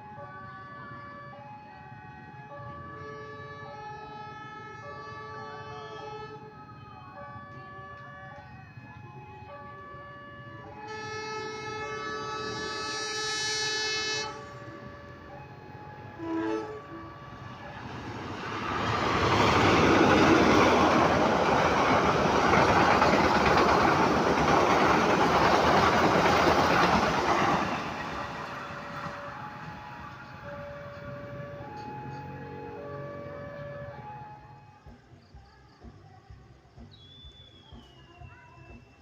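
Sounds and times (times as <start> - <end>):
train horn: 2.2 - 8.6, 9.2 - 34.8
train passing rumble and rattle: 9.1 - 36.0.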